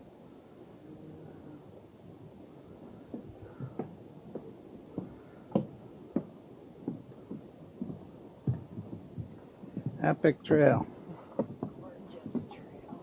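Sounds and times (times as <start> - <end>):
footsteps on wooden boardwalk: 2.6 - 13.0.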